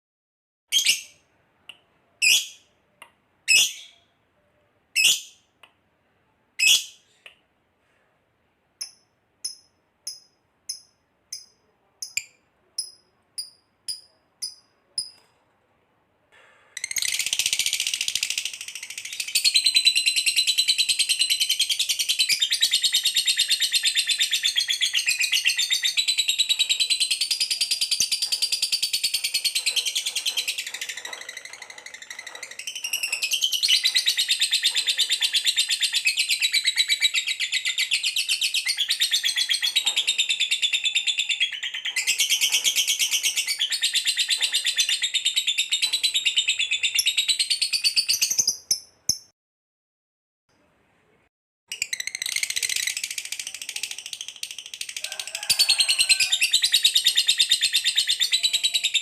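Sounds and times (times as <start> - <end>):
canary trilling song: 8.8 - 15.2, 16.8 - 49.3, 51.7 - 59.0
sparrow chirps: 56.5 - 59.0.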